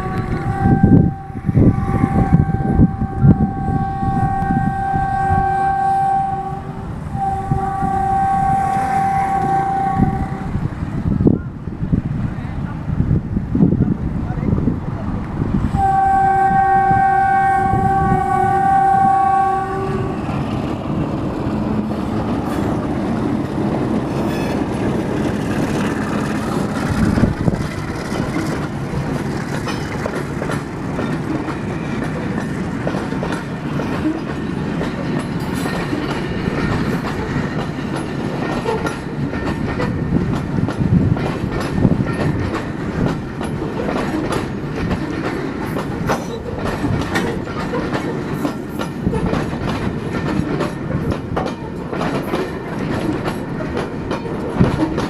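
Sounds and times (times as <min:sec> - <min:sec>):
train wheels clicking on rail joints: 0:00.0 - 0:11.4, 0:15.2 - 0:55.0
locomotive engine running: 0:17.6 - 0:55.0.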